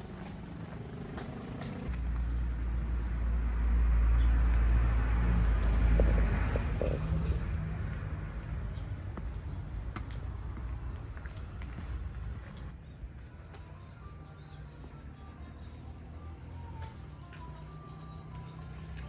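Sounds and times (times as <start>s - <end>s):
vehicle driving past: 0.0s - 12.8s.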